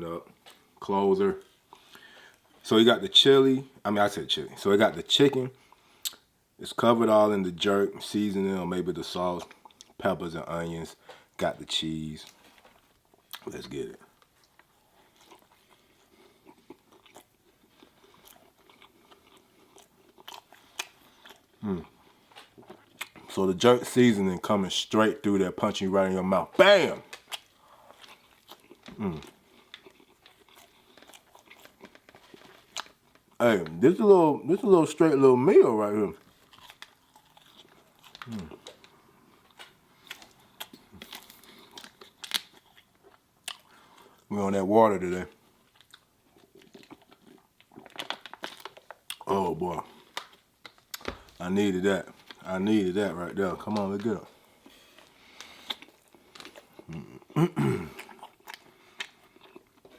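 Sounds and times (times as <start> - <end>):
person chewing sandwich: 1.4 - 2.6, 9.4 - 10.0, 12.3 - 23.3, 26.9 - 33.8, 36.2 - 44.3, 45.3 - 51.4, 53.6 - 59.9
person humming mm: 21.6 - 21.9, 28.9 - 29.3, 38.3 - 38.5
food packaging crinkling: 25.6 - 34.0, 36.1 - 44.2, 44.9 - 57.0, 57.9 - 59.9.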